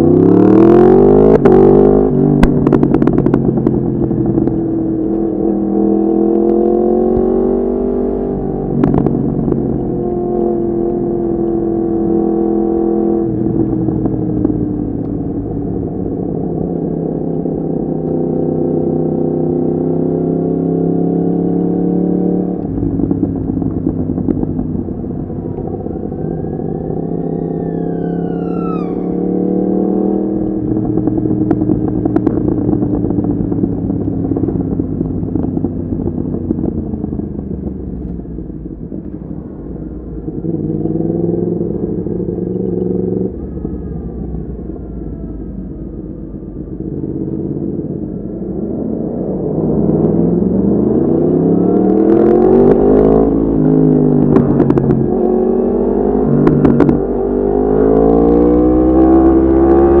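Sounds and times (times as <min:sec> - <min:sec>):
motorcycle engine revving: 0:00.0 - 1:00.0
exhaust cracks: 0:22.5 - 0:40.9, 0:49.7 - 0:57.4.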